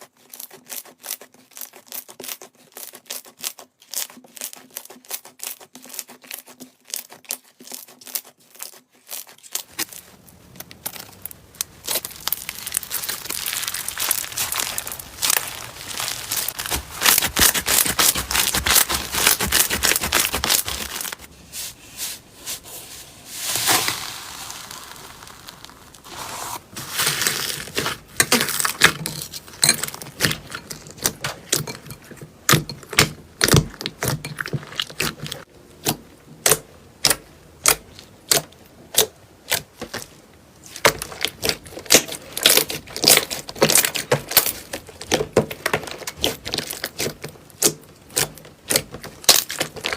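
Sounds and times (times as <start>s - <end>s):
slime squeezed by hand: 11.8s - 22.6s.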